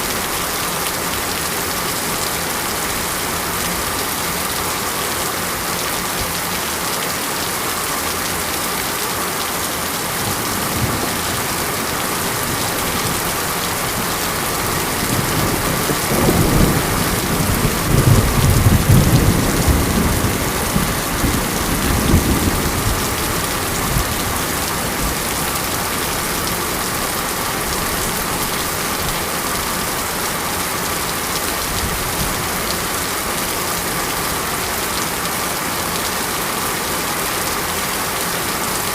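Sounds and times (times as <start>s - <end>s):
steady rain: 0.0s - 38.9s
thunder rumbling: 10.2s - 28.3s.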